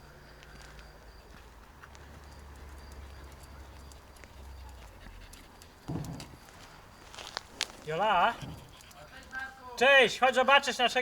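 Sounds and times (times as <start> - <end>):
dog panting: 2.2 - 6.4, 7.9 - 9.6.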